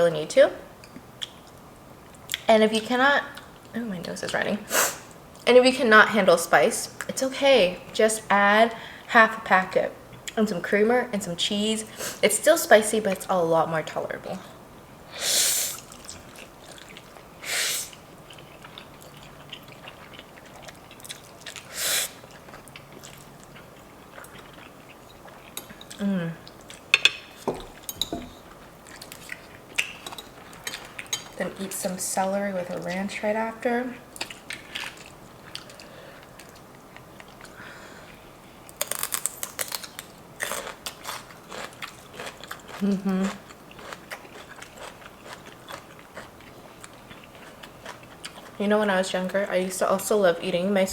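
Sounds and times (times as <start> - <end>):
chewing food with wet clicks: 0.9 - 2.5, 15.8 - 17.3, 17.9 - 26.9, 28.8 - 31.4, 34.1 - 48.6
celery crunching: 38.7 - 45.9.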